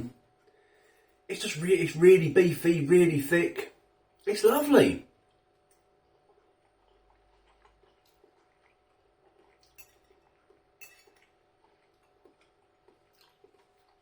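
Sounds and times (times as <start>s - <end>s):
cutlery clinking on a dish: 10.8s - 11.2s.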